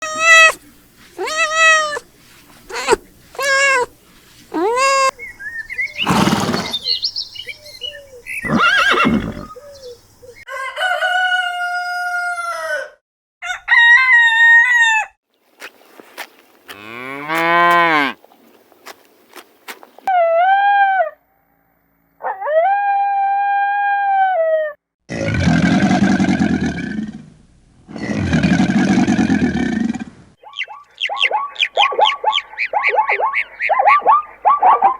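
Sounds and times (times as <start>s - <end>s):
farm animal calls: 0.0s - 10.4s, 30.4s - 34.9s
rooster crowing: 10.5s - 15.1s.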